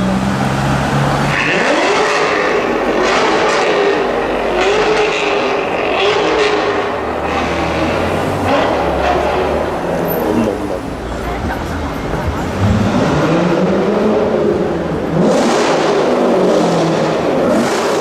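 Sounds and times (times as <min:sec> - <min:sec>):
car engine revving: 0:00.0 - 0:11.0, 0:12.4 - 0:18.0.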